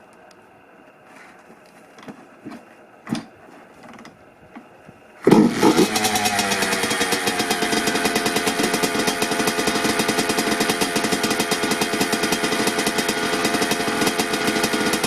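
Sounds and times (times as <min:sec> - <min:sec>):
two-stroke engine running: 0:05.2 - 0:15.0.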